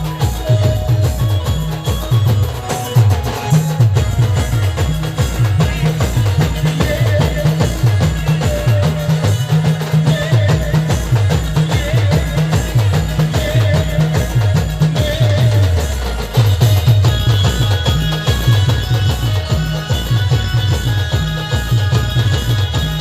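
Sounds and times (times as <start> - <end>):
driving drum beat: 0.0 - 23.0.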